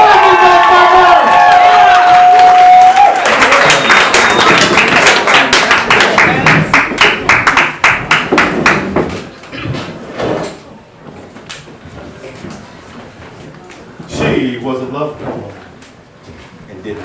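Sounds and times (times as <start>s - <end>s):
crowd cheering: 0.0s - 8.2s
audience clapping in rhythm: 1.6s - 9.1s.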